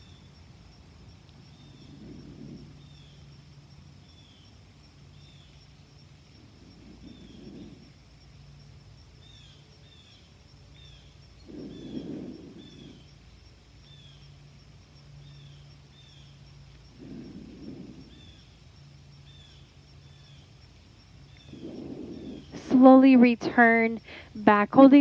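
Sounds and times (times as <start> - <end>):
faint background hiss: 0.0 - 25.0
small bird chirping: 1.5 - 3.4, 4.0 - 7.9, 9.2 - 14.4, 15.2 - 24.1.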